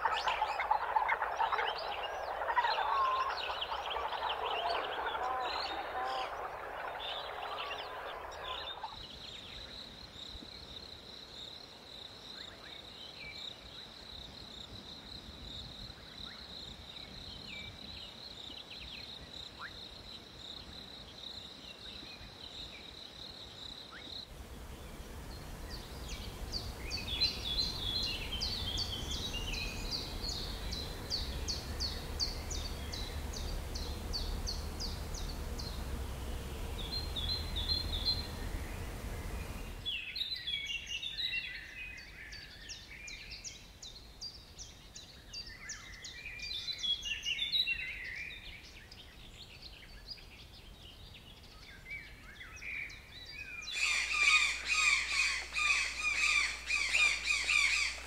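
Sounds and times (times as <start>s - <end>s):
birds chirping: 0.0s - 9.7s, 24.2s - 41.2s, 53.6s - 58.0s
faint chirps: 0.0s - 10.4s, 24.0s - 40.0s, 53.6s - 58.0s
low rumble: 24.3s - 39.9s.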